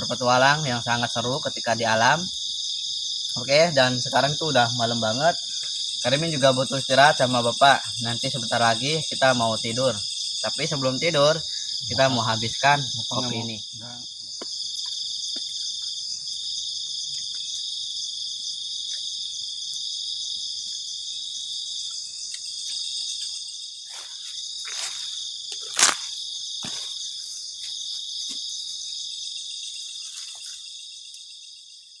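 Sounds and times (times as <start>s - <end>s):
crickets trilling: 0.0s - 32.0s
sharp cracks: 25.5s - 26.8s.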